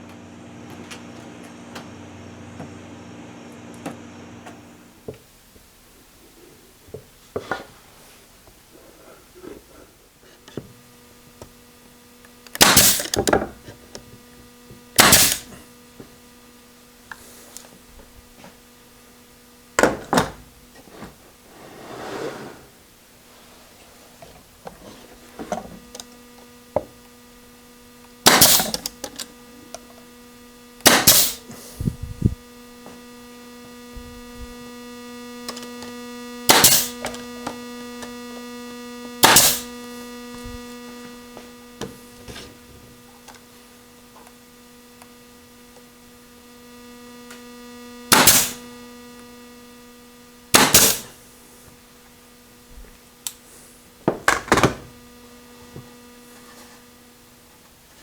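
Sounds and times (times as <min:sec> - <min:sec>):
machine motor humming: 0:08.4 - 0:21.7, 0:22.5 - 0:58.0
short loud bursts of noise: 0:12.6 - 0:13.2, 0:15.0 - 0:15.6, 0:28.2 - 0:28.9, 0:30.8 - 0:32.4, 0:36.4 - 0:37.2, 0:39.2 - 0:40.6, 0:48.1 - 0:48.7, 0:50.5 - 0:51.2.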